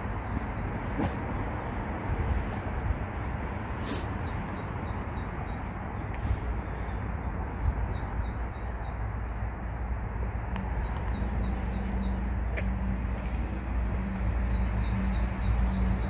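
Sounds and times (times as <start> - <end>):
low outdoor rumble: 0.0 - 16.0
bird chirping: 4.2 - 9.1, 10.8 - 12.5, 14.5 - 16.0.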